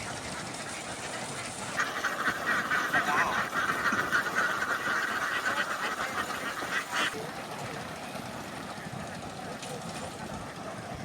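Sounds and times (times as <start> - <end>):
flock of ducks quacking: 0.0 - 7.9.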